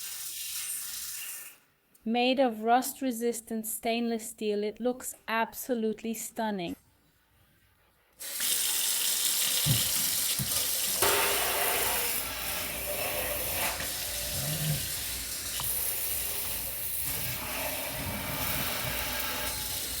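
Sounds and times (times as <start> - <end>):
water running from faucet into sink: 8.2 - 20.0.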